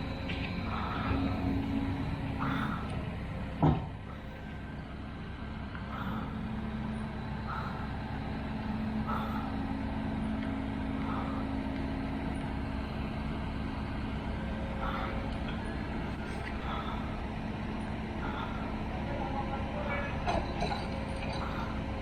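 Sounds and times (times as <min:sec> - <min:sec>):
heavy vehicle engine humming: 0:00.0 - 0:22.0.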